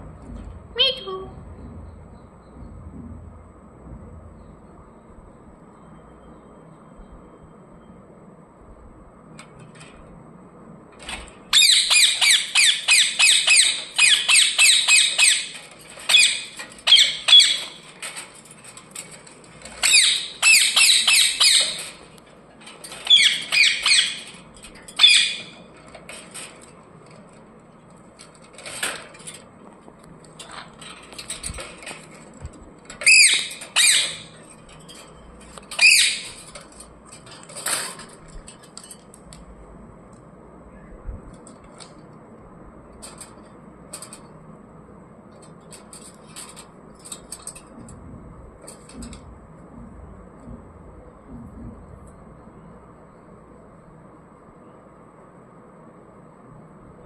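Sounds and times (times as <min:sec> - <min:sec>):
parrot squawking: 0:11.5 - 0:17.8, 0:19.8 - 0:22.0, 0:23.0 - 0:24.3, 0:25.0 - 0:25.6, 0:33.0 - 0:34.4, 0:35.8 - 0:36.3.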